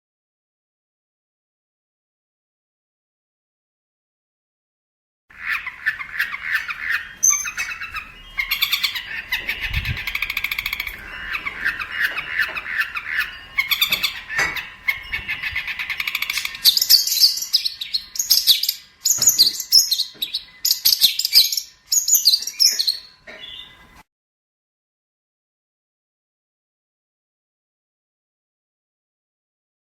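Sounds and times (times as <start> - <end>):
shrike chattering song: 5.3 - 24.0.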